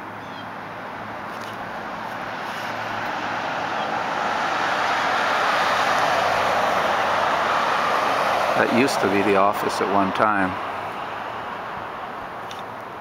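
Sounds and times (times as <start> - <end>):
vehicle passing on road: 0.0 - 13.0.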